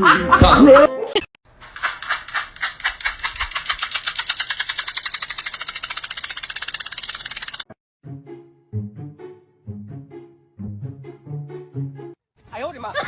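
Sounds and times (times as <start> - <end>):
sharp clicks speeding up: 1.6 - 7.7
person laughing and speaking: 12.6 - 13.0.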